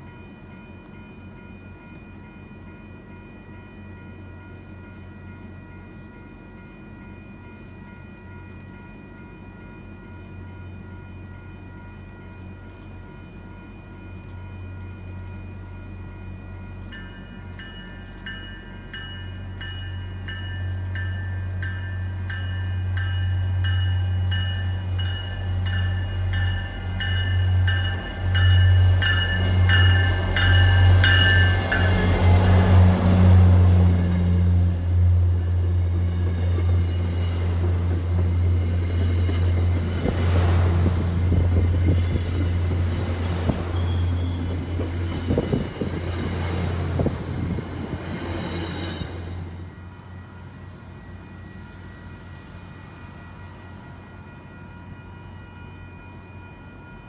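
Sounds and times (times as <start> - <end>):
diesel locomotive engine drone: 0.0 - 57.0
warning bell ringing: 15.4 - 32.8.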